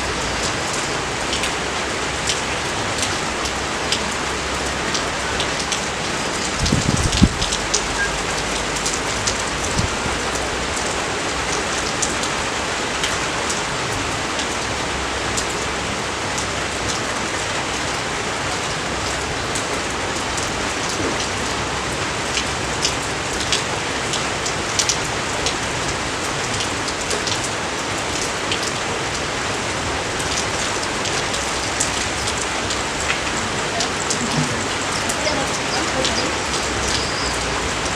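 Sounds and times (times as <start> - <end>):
raindrops ticking: 0.0 - 13.7, 30.2 - 37.9
steady rain: 0.0 - 37.9.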